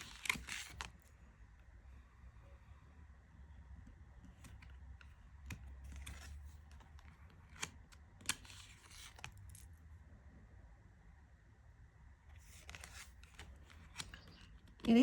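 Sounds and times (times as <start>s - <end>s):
cards sliding and rustling: 0.0s - 1.1s, 4.2s - 9.7s, 12.3s - 15.0s
cards clicking when set down: 12.5s - 14.9s.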